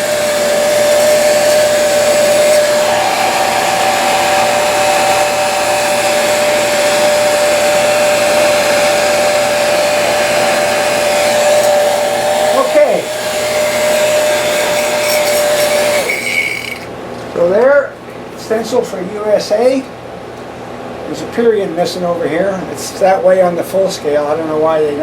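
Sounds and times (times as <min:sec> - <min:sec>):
heat gun blowing with whine: 0:00.0 - 0:16.9.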